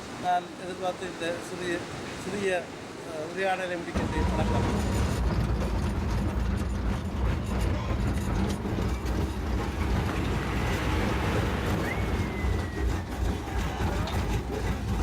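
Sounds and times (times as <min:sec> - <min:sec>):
low rumble with rushing hiss: 0:03.8 - 0:15.0
faint thin whistle: 0:11.8 - 0:12.9.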